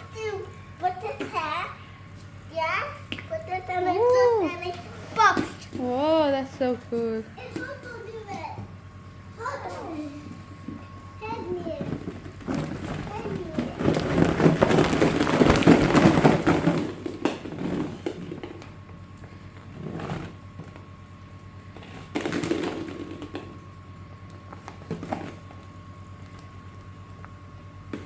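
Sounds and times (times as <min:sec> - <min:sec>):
plastic balls clattering: 0:11.8 - 0:18.7, 0:22.0 - 0:23.6.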